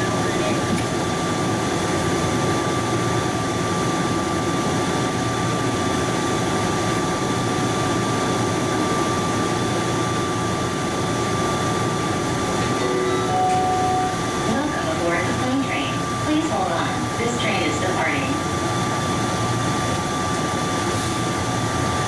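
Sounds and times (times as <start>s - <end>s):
aircraft cabin rushing hum: 0.0s - 3.9s, 10.8s - 22.0s
high whine: 12.6s - 18.0s.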